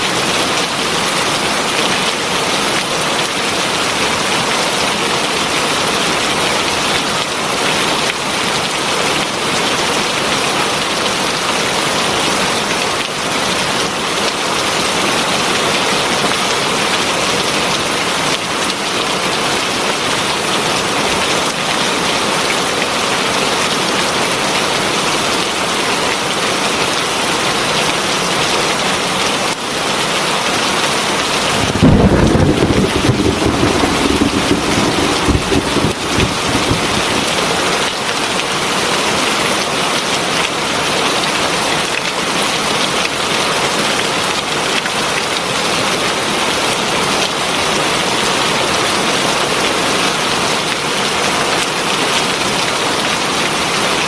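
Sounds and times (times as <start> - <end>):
heavy rain falling: 30.6 - 40.4.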